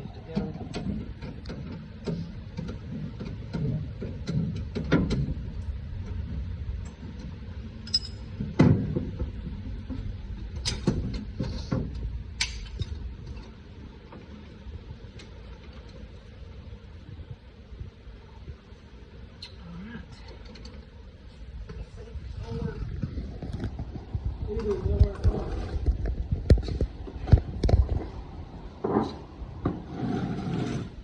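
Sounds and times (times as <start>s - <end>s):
steady low rumble: 0.0s - 31.0s
metal tools clanking: 7.8s - 8.4s.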